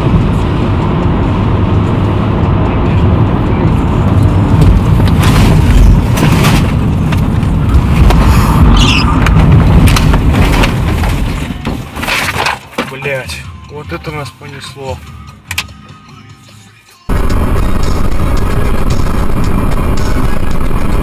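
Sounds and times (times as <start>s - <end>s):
car low rumble: 0.0s - 14.0s, 17.1s - 21.0s
high squeal: 8.4s - 9.2s.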